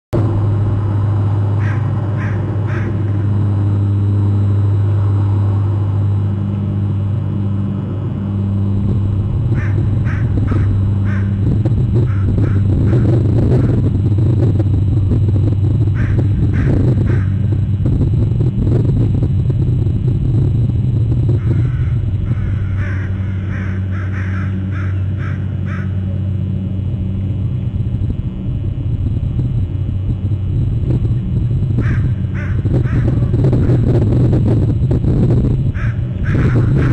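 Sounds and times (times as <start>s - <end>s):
low hum and rumble: 0.0s - 36.9s
harsh bird calls: 1.6s - 3.3s, 9.5s - 11.4s, 21.4s - 26.0s, 35.8s - 36.9s.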